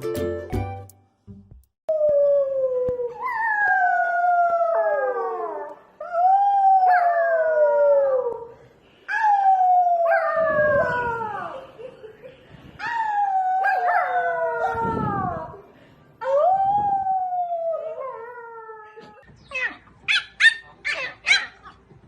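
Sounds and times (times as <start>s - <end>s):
dog howling: 13.3s - 15.6s.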